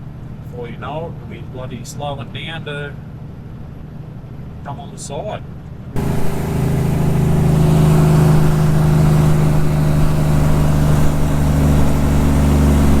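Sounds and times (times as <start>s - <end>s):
truck diesel engine running: 6.0s - 13.0s.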